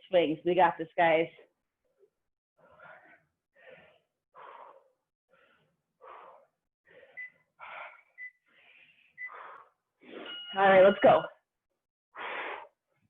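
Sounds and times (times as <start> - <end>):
person breathing heavily: 2.6 - 10.4, 12.1 - 13.0.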